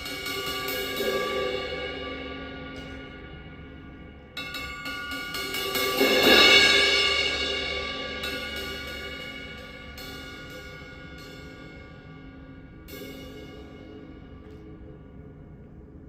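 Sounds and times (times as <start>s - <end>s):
cymbal played with light strokes: 0.0s - 16.0s.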